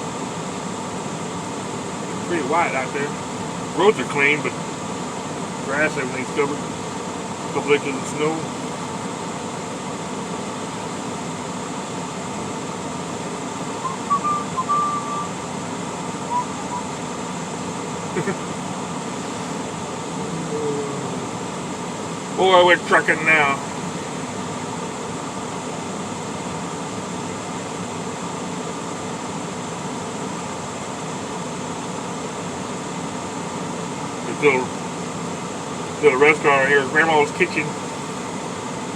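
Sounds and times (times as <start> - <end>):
cab fan hum: 0.0 - 38.9
truck engine hum: 0.0 - 38.9
short high-pitched chirps: 13.7 - 15.4, 16.2 - 17.0.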